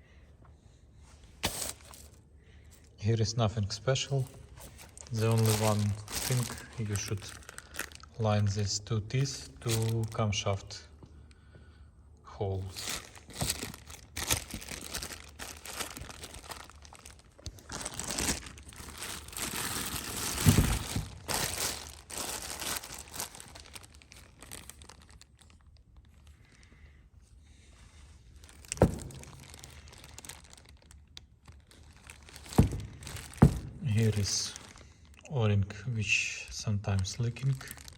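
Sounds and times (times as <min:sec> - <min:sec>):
packaging crinkling and rustling: 0:01.4 - 0:02.2, 0:03.9 - 0:08.6, 0:09.2 - 0:10.3, 0:12.6 - 0:26.7, 0:28.0 - 0:35.2, 0:36.9 - 0:37.9
low thud: 0:28.7 - 0:29.6.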